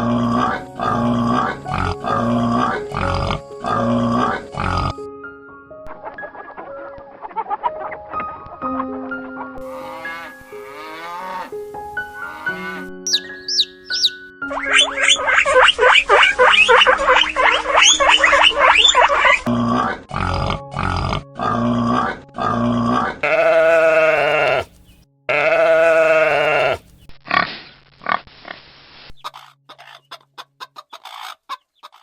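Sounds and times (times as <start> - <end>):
pigs grunting: 0.0 - 5.0, 15.2 - 24.7, 25.3 - 28.6
pigs squealing: 0.0 - 5.0, 9.7 - 11.5, 12.2 - 24.7, 25.3 - 28.2.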